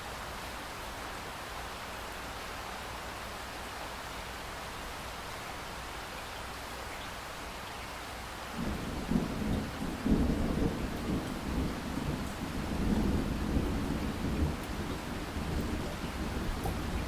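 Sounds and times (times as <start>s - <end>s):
steady rain hiss: 0.0s - 17.0s
thunder rumbling and cracking: 8.6s - 17.0s.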